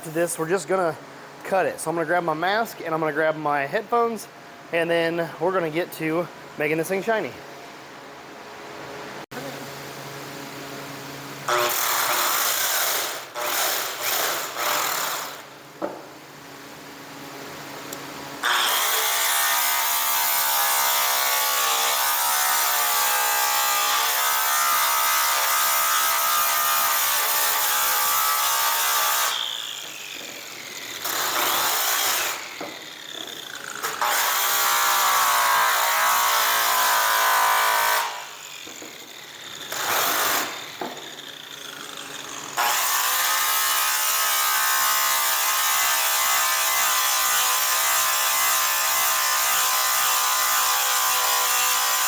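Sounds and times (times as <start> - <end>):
angle grinder running: 18.4 - 52.0.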